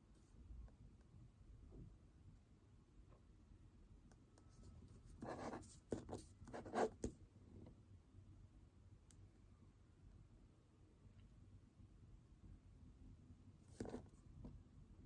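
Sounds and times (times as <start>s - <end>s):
pen scratching on paper: 5.1s - 7.2s, 13.7s - 14.2s.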